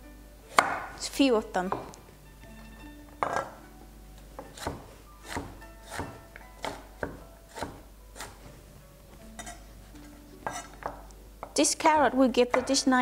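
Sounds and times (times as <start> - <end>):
soft background music: 0.0 - 13.0
knife chopping carrot on board: 0.5 - 1.0, 4.4 - 8.4, 10.4 - 11.6, 12.5 - 12.8.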